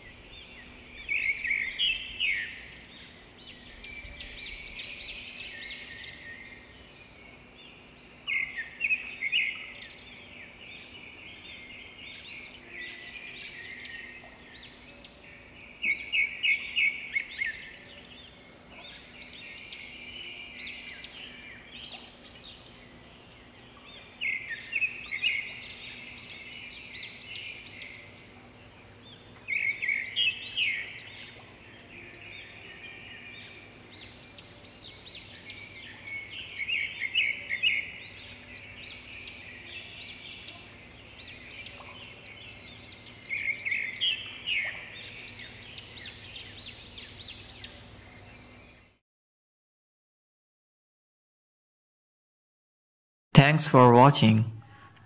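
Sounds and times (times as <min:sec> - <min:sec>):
birds chirping and trilling: 0:00.0 - 0:49.0.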